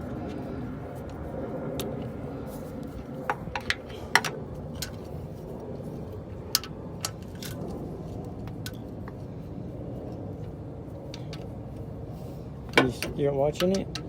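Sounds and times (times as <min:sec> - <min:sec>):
low background rumble: 0:00.0 - 0:14.0
metallic clicks of tools: 0:12.8 - 0:14.0.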